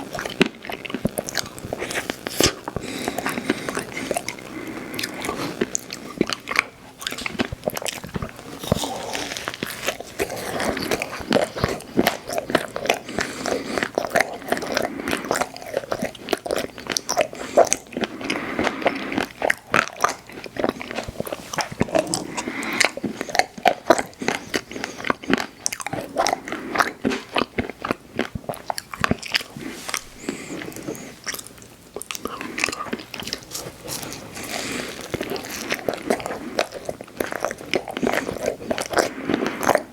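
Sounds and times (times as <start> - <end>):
person chewing ice cream: 0.0 - 39.9.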